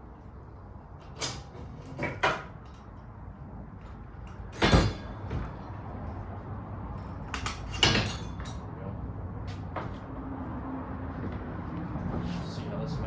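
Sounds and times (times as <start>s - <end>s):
highway traffic rumble: 0.0s - 13.0s
bike parts and tools clanking: 0.9s - 8.8s.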